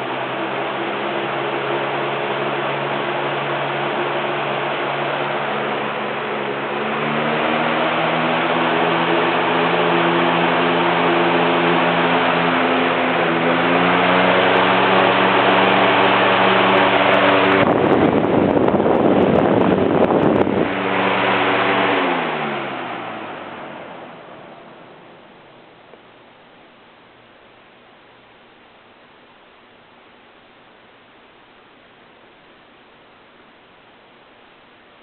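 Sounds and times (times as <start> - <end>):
rush of air from fan: 0.0 - 27.6
fan motor hum: 0.0 - 35.0.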